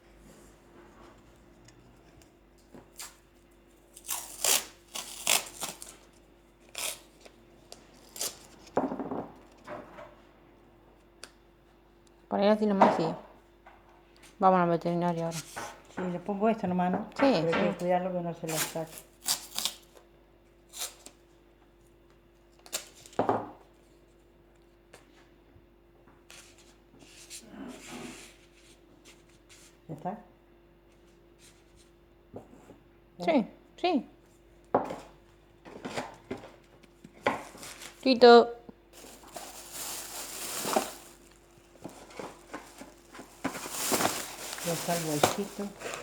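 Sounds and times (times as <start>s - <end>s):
short sharp tearing noises: 4.0s - 6.0s
rustling and scraping handling noises: 14.1s - 16.6s, 26.2s - 29.8s, 30.9s - 32.8s, 34.3s - 38.2s, 39.0s - 46.0s.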